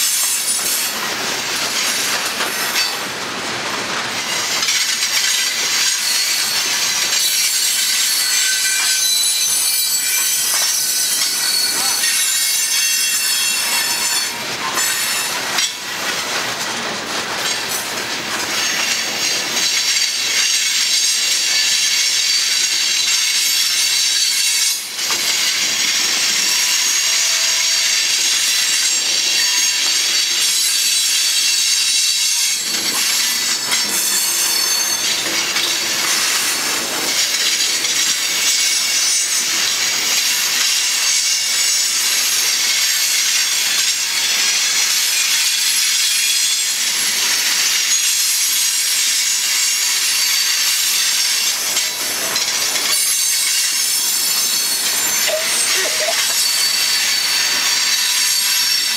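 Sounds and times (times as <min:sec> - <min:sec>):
train wheels hissing on rail: 0:00.0 - 0:58.9.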